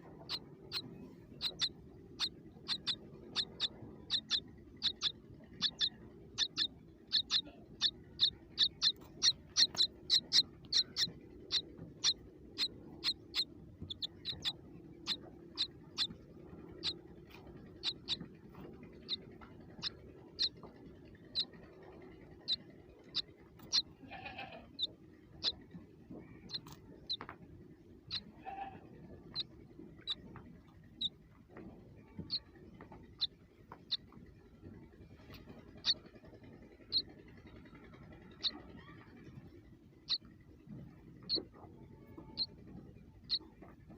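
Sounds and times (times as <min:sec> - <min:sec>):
soft low bird calls: 0:00.0 - 0:27.2
baby birds cheeping: 0:00.0 - 0:27.3, 0:28.0 - 0:31.2, 0:32.0 - 0:40.3, 0:41.1 - 0:43.7.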